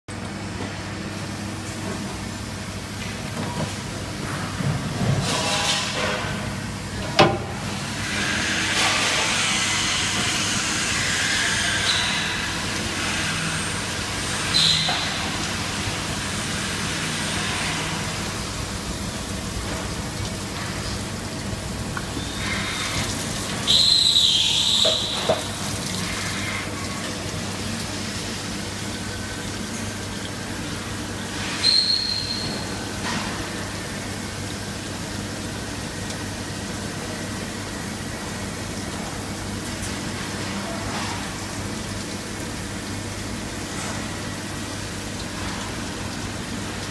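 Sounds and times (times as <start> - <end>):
loud high squeal: 14.4 - 15.1, 23.6 - 25.4, 31.4 - 32.7.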